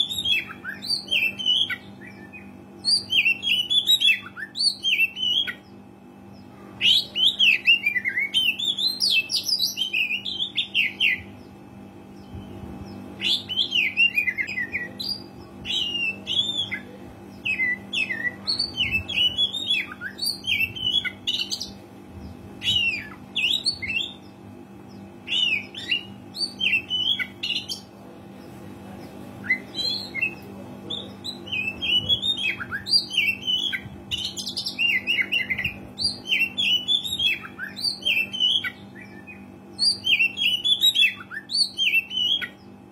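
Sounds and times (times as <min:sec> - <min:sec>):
steady low hum: 0:00.0 - 0:42.9
bird singing whistles and chirps: 0:12.2 - 0:21.7, 0:29.4 - 0:42.6.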